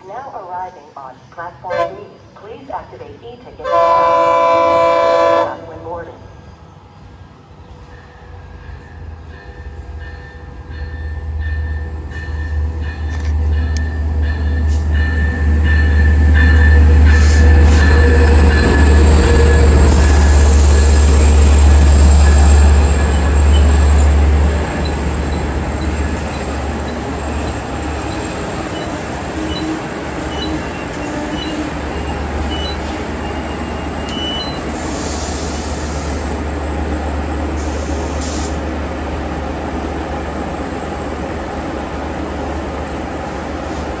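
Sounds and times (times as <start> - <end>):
diesel train rumbling: 0.4 - 44.0
wheel and brake squeals: 17.1 - 36.8.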